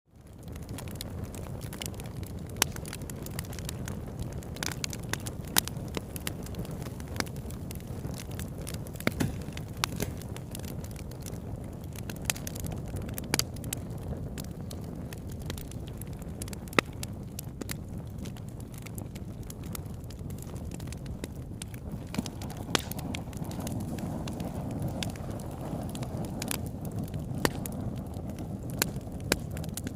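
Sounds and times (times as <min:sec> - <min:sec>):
campfire crackling and popping: 0:00.1 - 0:29.9
loud wood snaps: 0:08.6 - 0:10.3, 0:22.1 - 0:23.8, 0:27.4 - 0:27.8.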